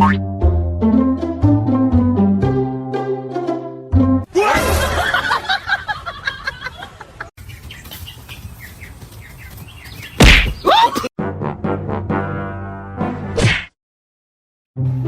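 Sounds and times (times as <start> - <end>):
birds chirping and calling: 7.4 - 11.0.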